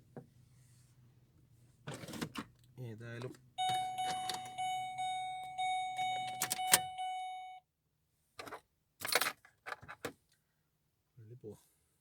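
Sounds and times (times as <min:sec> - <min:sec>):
car warning chime dinging: 0:03.6 - 0:07.6
clicks: 0:03.6 - 0:07.6.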